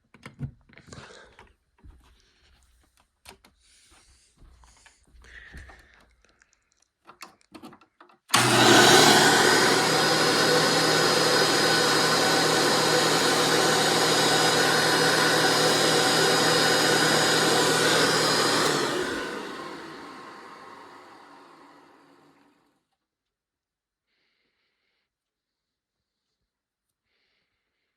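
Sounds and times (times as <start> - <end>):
vacuum cleaner running: 8.3 - 22.7.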